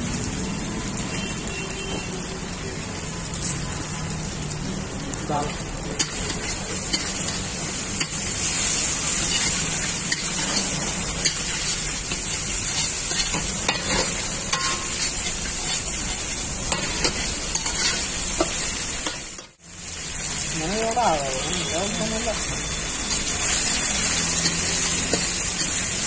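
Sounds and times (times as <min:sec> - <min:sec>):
food sizzling in a wok: 0:00.0 - 0:26.0
metal spatula scraping a pan: 0:06.0 - 0:19.6, 0:22.9 - 0:26.0.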